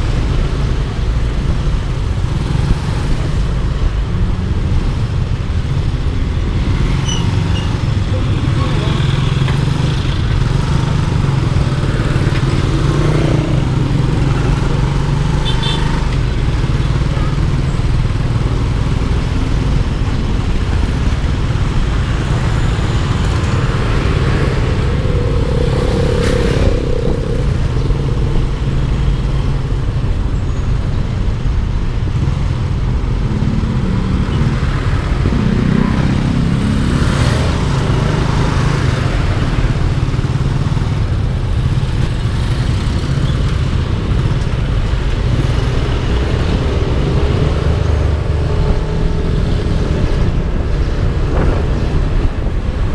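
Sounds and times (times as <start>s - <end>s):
traffic passing: 0.0s - 52.9s
scooter engine low rumble: 11.1s - 34.0s.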